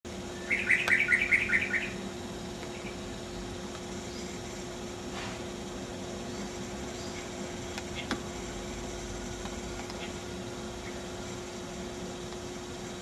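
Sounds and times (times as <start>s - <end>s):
bird harsh chattering call: 0.4s - 2.0s.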